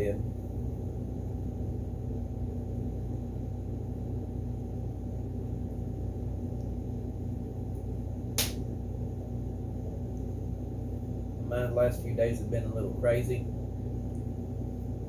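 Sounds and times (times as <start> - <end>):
low hum of fan: 0.0 - 15.0
sharp click: 8.4 - 8.6.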